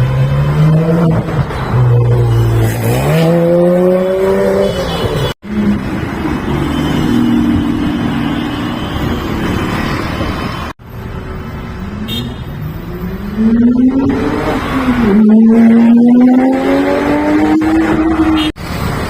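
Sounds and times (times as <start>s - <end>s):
car engine revving: 13.2s - 18.5s.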